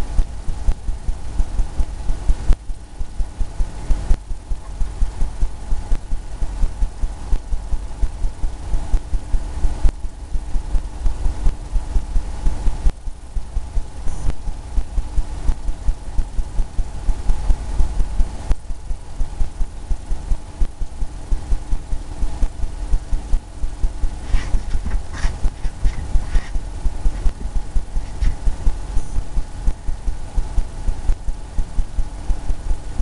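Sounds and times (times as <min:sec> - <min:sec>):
brush dabbing paint on canvas: 0:23.7 - 0:30.0.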